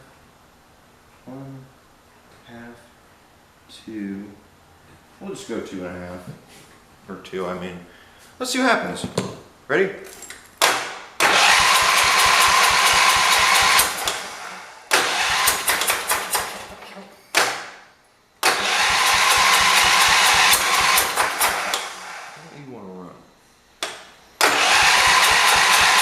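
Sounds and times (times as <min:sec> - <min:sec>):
engine cranking with starter whine: 0:11.2 - 0:16.8, 0:18.4 - 0:22.5, 0:24.4 - 0:26.0.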